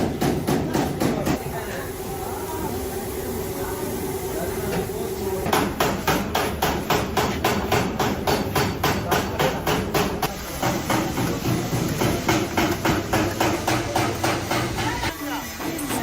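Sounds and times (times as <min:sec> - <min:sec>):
hammer on sheet metal: 0:00.0 - 0:01.4, 0:05.4 - 0:15.1.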